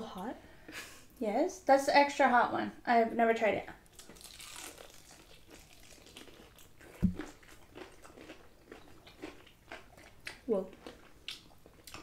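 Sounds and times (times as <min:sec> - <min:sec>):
chewing crispy fried chicken: 0:03.9 - 0:12.0
low thump: 0:07.0 - 0:07.2.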